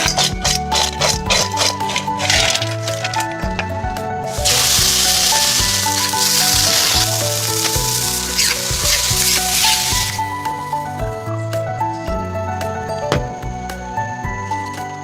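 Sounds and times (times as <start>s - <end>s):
background music: 0.0s - 15.0s
food sizzling in hot oil: 4.3s - 11.0s.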